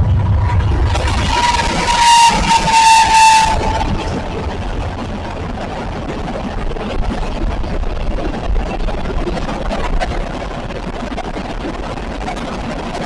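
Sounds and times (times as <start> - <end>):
locomotive horn: 0.0 - 5.5
train rumbling past: 0.0 - 13.0.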